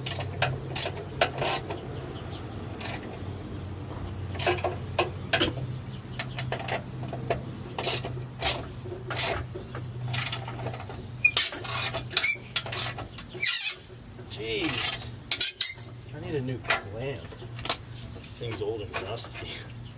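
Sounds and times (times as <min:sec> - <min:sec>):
metal scraping and clinking: 0:10.1 - 0:14.0, 0:14.6 - 0:16.9.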